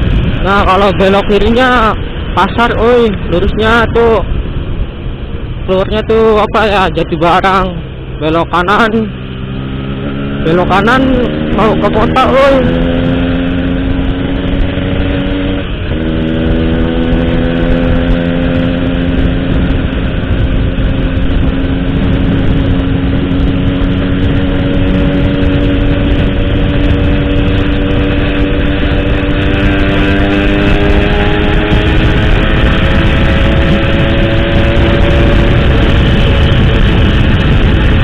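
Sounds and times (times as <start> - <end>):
motorcycle engine: 0.0 - 38.0
wind and road noise: 0.0 - 38.0.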